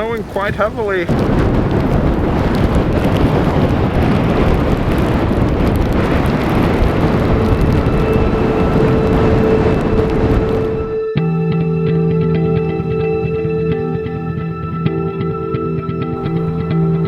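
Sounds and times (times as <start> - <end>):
storm wind buffeting microphone: 0.0 - 17.0
steady music tone: 7.4 - 17.0.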